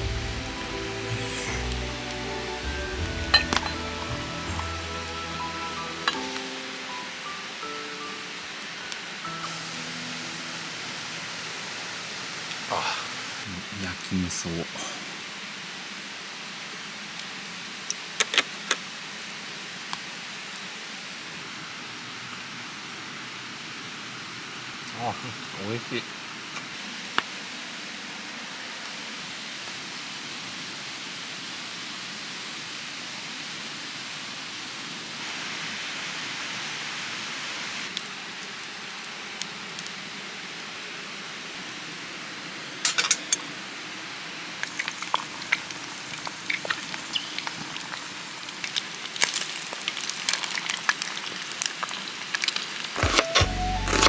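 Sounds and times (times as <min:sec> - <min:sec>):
campfire crackling and popping: 0:00.0 - 0:14.6, 0:17.2 - 0:21.2, 0:37.9 - 0:54.0
mountain stream rushing: 0:00.0 - 0:50.4, 0:52.6 - 0:54.0.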